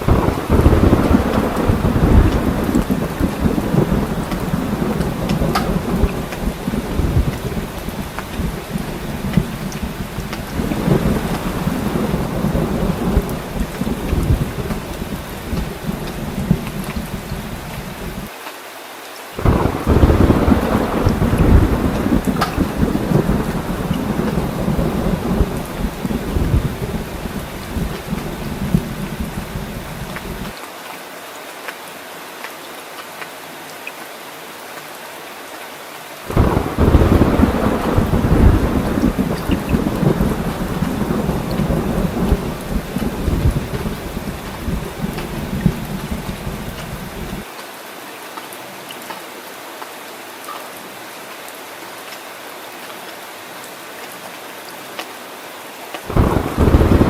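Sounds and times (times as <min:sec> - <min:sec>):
deep rolling thunder: 0:00.0 - 0:18.3, 0:19.4 - 0:30.5, 0:36.3 - 0:47.4, 0:56.1 - 0:57.0
heavy rain falling: 0:00.0 - 0:57.0.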